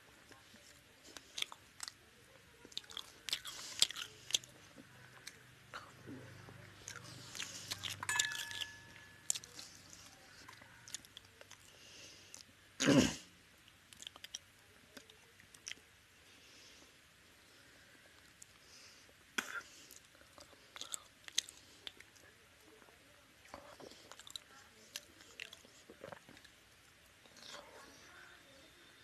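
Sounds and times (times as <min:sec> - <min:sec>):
wet chewing and mouth clicks: 0:01.1 - 0:02.0, 0:02.6 - 0:04.6, 0:13.6 - 0:15.9, 0:19.4 - 0:22.3, 0:23.5 - 0:26.6.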